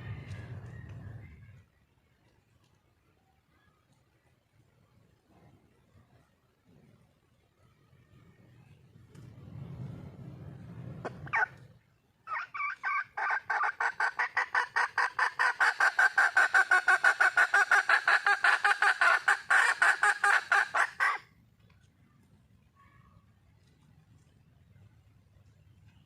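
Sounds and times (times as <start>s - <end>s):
hen clucking: 12.3s - 21.2s.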